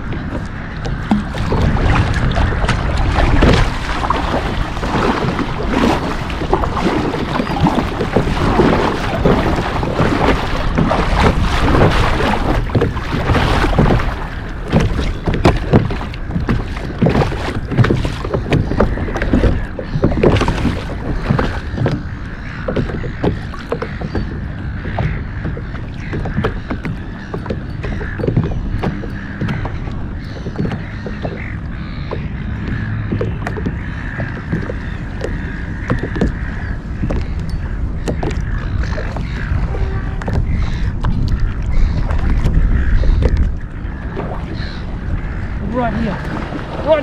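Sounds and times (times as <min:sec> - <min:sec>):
water slapping kayak hull: 0:00.0 - 0:47.0.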